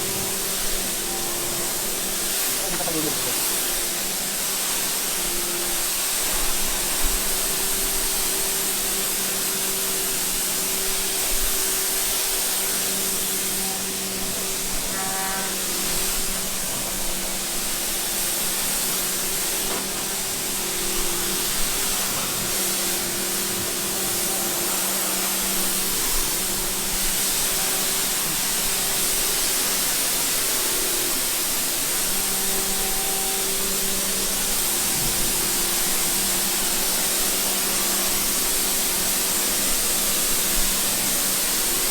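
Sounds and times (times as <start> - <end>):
water spraying: 0.0 - 41.9.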